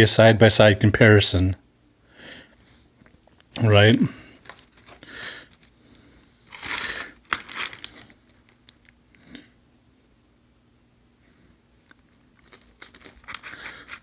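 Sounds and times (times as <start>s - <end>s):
paper wrapping crinkling: 4.4s - 9.0s, 11.8s - 14.0s.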